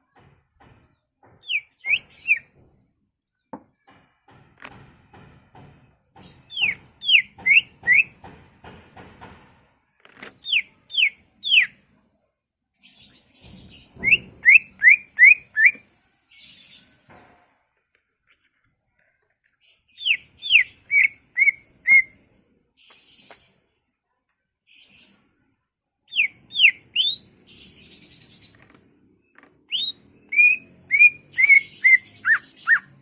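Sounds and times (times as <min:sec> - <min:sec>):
bird whistling downward slides: 0:01.5 - 0:02.4, 0:14.0 - 0:15.8, 0:20.0 - 0:22.1, 0:29.7 - 0:32.9
soft scratchy bird chatter: 0:17.7 - 0:33.0.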